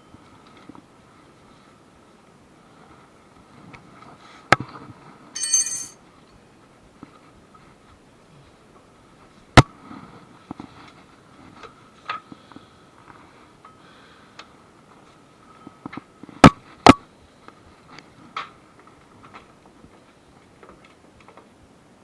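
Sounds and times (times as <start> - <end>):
faint high whine: 0.0 - 2.9.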